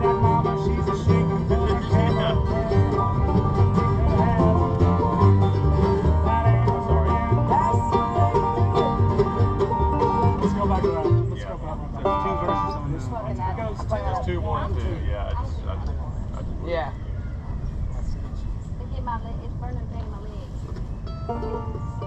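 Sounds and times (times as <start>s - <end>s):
bass line: 0.0s - 13.2s
acoustic guitar: 0.0s - 14.0s
banjo: 0.0s - 14.3s, 21.0s - 22.0s.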